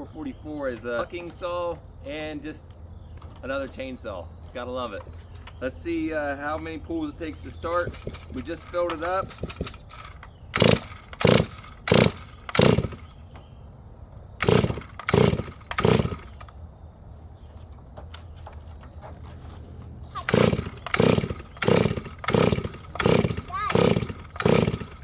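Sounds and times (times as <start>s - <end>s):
chainsaw recoil starter pulls: 7.4s - 13.1s, 14.4s - 16.6s, 20.1s - 25.0s.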